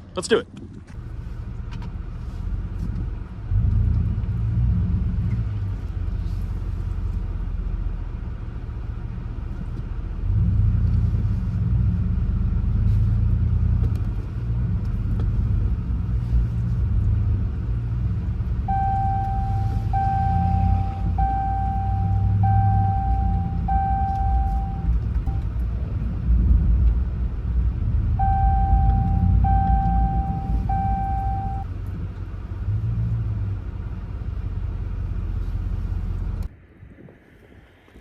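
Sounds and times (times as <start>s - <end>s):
truck engine rumble: 0.0s - 36.6s
steady high tone: 18.7s - 25.4s, 28.2s - 31.6s.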